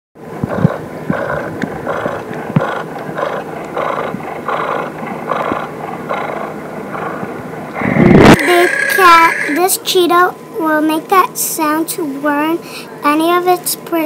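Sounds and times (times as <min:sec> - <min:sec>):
cheetah growling pulses: 0:00.4 - 0:09.7.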